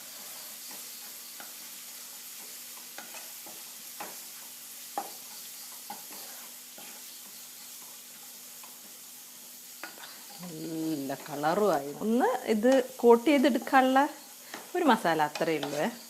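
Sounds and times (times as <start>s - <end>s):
food sizzling in oil: 0.0s - 16.0s
spatula stirring and tapping pan: 0.0s - 16.0s.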